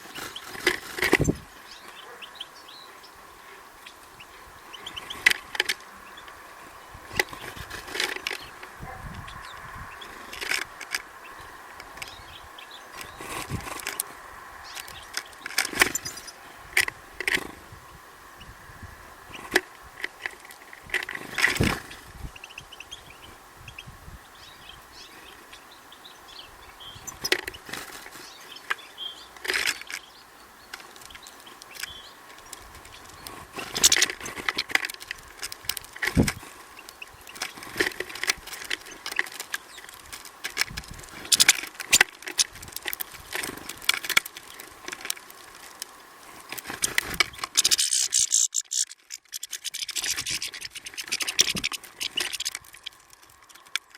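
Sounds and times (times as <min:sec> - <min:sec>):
loud scratching rustle: 0:00.0 - 0:02.2, 0:06.6 - 0:09.3, 0:12.9 - 0:16.4, 0:19.3 - 0:22.2, 0:26.9 - 0:30.0, 0:30.8 - 0:53.9
birds pecking and landing: 0:00.0 - 0:23.8, 0:24.4 - 0:53.9
faint bird chirps: 0:47.3 - 0:53.7.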